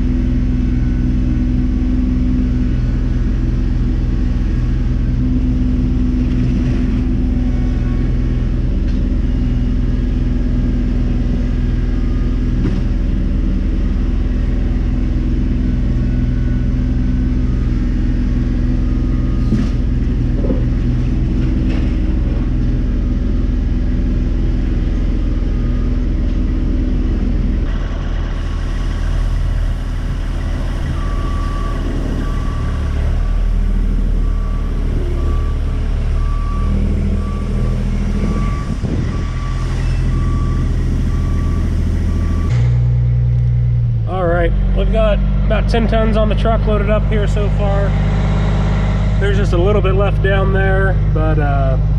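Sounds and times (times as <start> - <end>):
diesel engine running: 0.0 - 51.9
reversing alarm beeping: 0.2 - 4.0, 7.0 - 43.3.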